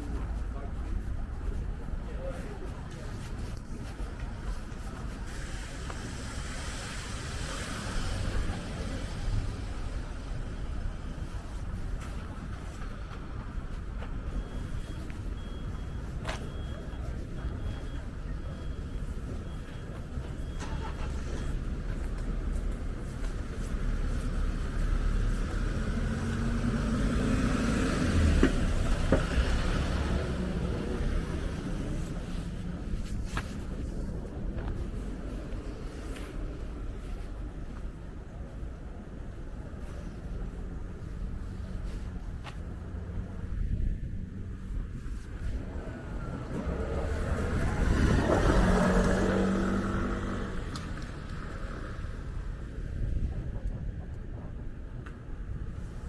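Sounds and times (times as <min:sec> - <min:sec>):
traffic rumble: 0:00.0 - 0:56.0
vehicle passing: 0:20.2 - 0:37.3, 0:44.3 - 0:53.2.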